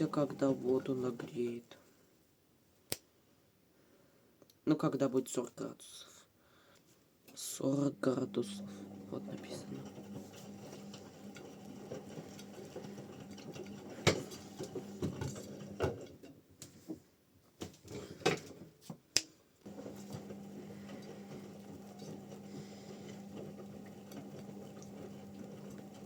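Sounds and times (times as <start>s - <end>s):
washing machine hum: 0.0s - 1.5s, 7.6s - 16.3s, 19.6s - 26.0s.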